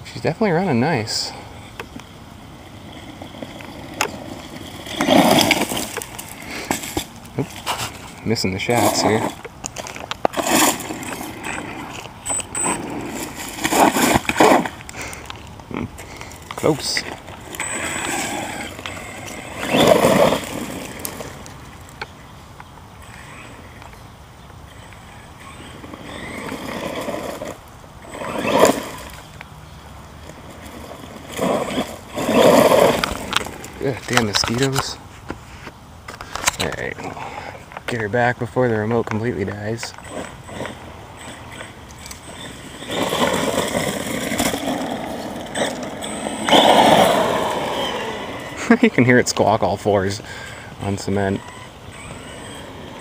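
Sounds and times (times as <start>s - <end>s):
tyre noise: 0.0s - 53.0s
electric motor whine: 8.7s - 15.4s, 16.1s - 22.1s, 22.9s - 33.7s, 39.9s - 48.8s, 50.8s - 53.0s.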